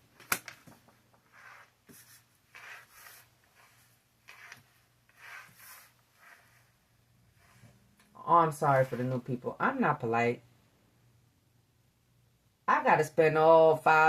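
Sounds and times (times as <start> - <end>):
cards sliding and rubbing: 0.2 - 7.9.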